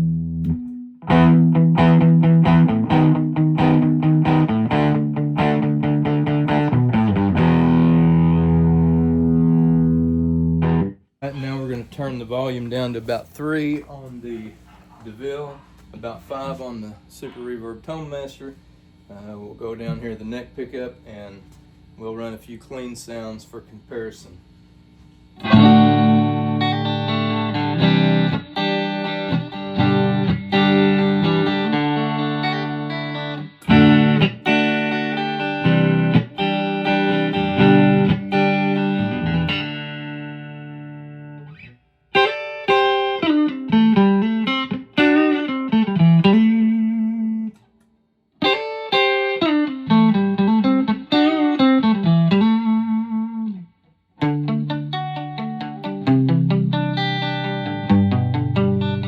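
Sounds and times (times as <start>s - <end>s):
clean electric guitar chords: 0.0s - 11.0s, 25.4s - 47.6s, 48.4s - 59.0s.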